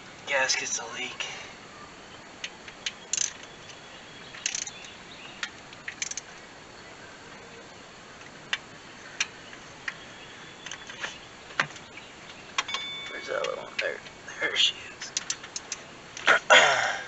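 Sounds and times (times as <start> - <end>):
hand tools clicking on bolts: 4.4 - 4.9, 15.0 - 15.8.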